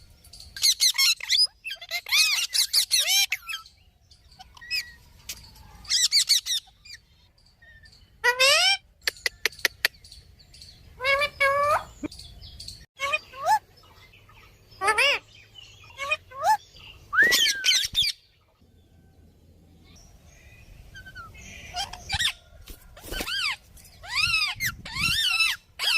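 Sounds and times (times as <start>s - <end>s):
parrot calls and whistles: 15.9s - 18.2s.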